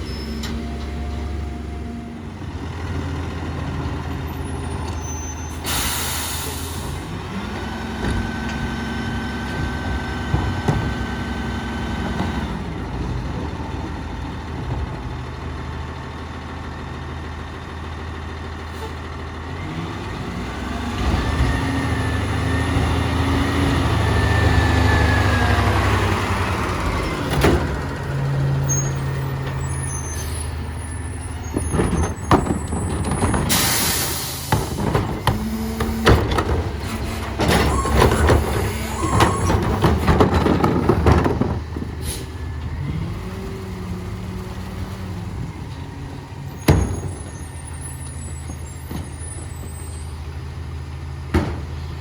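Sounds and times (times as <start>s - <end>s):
garbage truck diesel engine revving: 0.0s - 52.0s.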